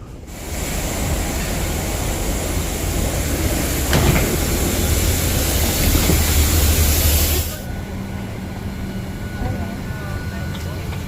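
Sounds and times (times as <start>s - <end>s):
rushing air and low hum in cabin: 0.0s - 11.0s.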